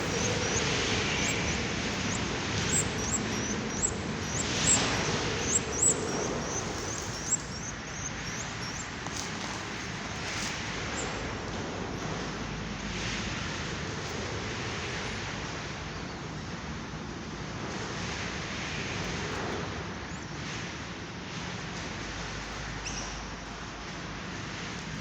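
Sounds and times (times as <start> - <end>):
cage bird chirp: 0.0 - 11.1
wind rushing on microphone: 0.0 - 20.6.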